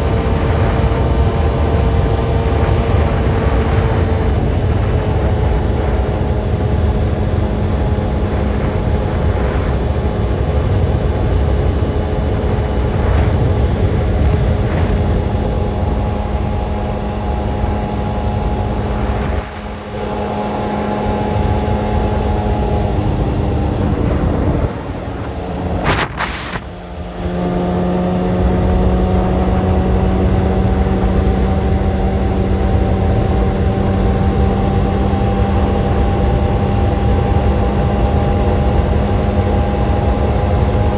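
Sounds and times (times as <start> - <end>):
motorcycle engine running: 0.0 - 40.9
wind rumble on microphone: 0.0 - 40.9.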